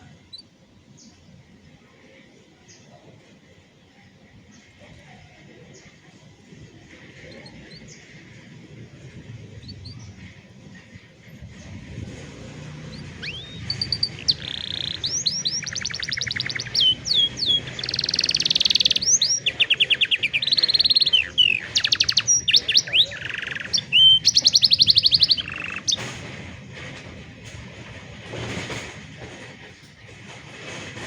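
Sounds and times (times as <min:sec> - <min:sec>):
canary singing trills: 0:07.0 - 0:26.1.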